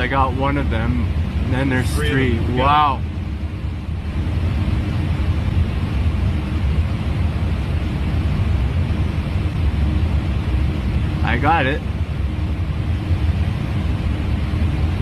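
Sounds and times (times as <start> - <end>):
airflow and engine rumble: 0.0 - 15.0
faint steady hum: 0.0 - 15.0.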